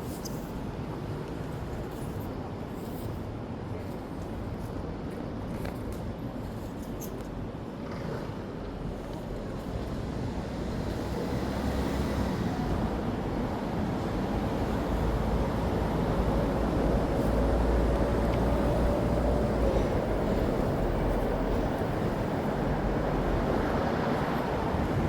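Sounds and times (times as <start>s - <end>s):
heavy vehicle engine rumble: 14.6s - 25.0s.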